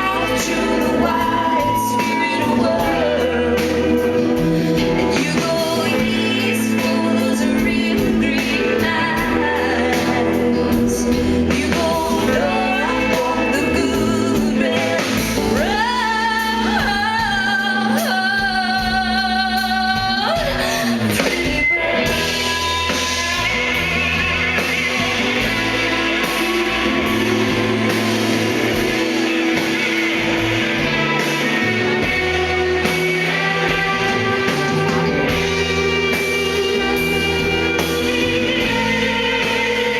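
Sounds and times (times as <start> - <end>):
woman singing: 0.0 - 23.3, 31.4 - 39.9
live band playing: 0.0 - 39.9.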